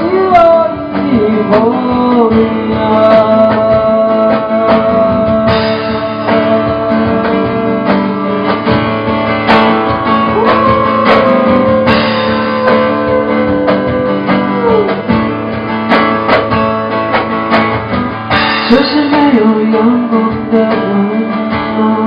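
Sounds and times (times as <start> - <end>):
strummed acoustic guitar: 0.0 - 22.0
sliding melody line: 6.1 - 16.9.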